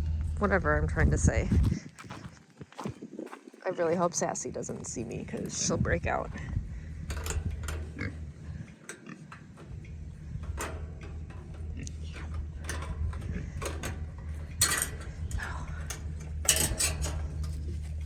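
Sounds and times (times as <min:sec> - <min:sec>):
steady low hum: 0:00.0 - 0:18.0
metal clinks: 0:05.6 - 0:18.0
rattle: 0:05.6 - 0:18.0.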